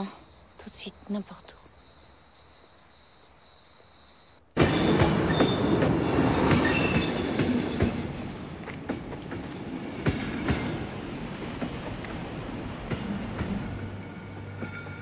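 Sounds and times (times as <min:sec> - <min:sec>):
train wheels rushing on rails: 0:00.0 - 0:15.0
high wheel squeals: 0:04.6 - 0:08.4.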